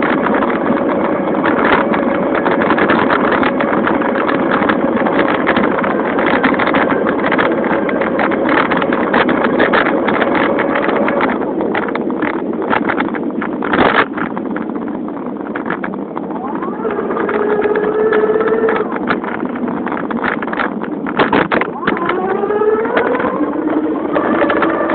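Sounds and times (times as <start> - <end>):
exhaust rattling off spokes: 0.0 - 24.9
wind buffeting microphone: 0.0 - 24.9
electric motor whine: 16.3 - 19.1, 21.6 - 24.9.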